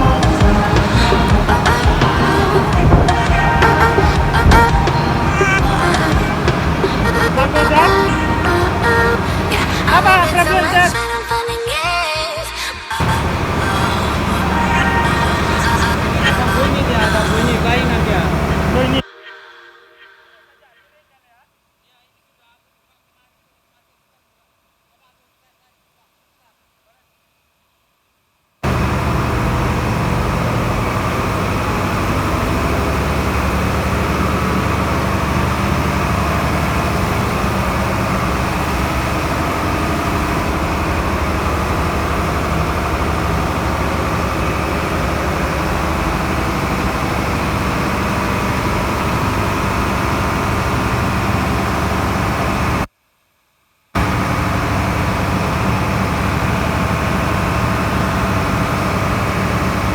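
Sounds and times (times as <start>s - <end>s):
diesel engine droning: 0.0s - 11.4s, 13.0s - 19.0s, 28.6s - 52.9s, 54.0s - 59.9s.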